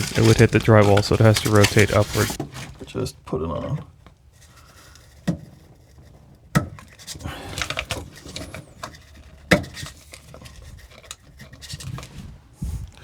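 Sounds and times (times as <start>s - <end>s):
scraping and rattling: 0.0s - 2.9s.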